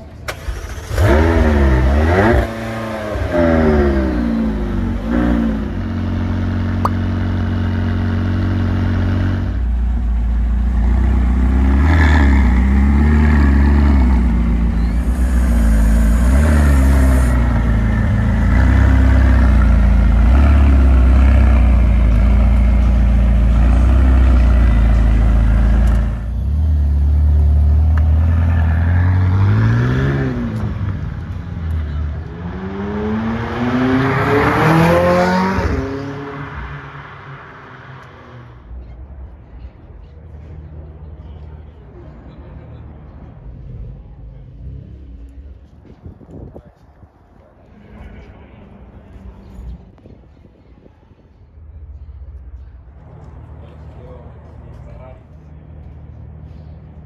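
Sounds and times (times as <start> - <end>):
sports car engine revving and idling: 0.4 - 36.6.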